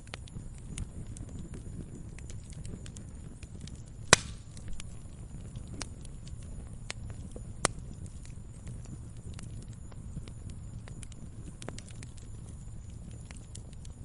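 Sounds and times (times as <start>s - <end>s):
campfire crackling: 0.0s - 14.0s
loud sharp pops of fire: 0.0s - 14.0s.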